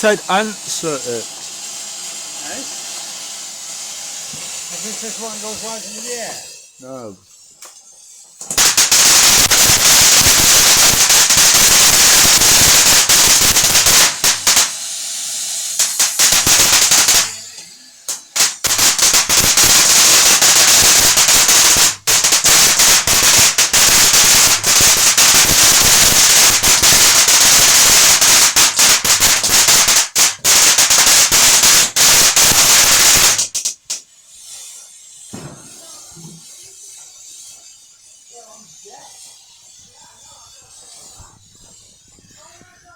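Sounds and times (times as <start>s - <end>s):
firework cracks and bangs: 0.0s - 5.8s, 8.4s - 34.1s, 35.3s - 36.2s
firework hissing: 0.0s - 42.9s.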